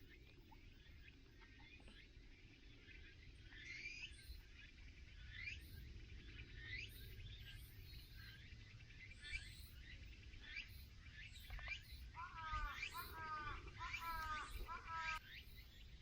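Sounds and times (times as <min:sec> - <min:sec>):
faint low outdoor hum: 0:00.0 - 0:16.0
wild birds calling: 0:11.4 - 0:16.0.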